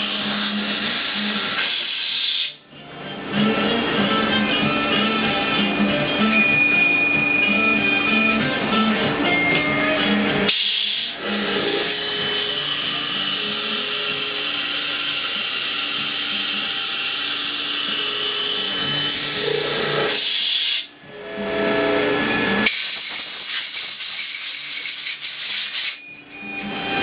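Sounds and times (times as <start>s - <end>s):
power tool whining: 10.9s - 20.3s.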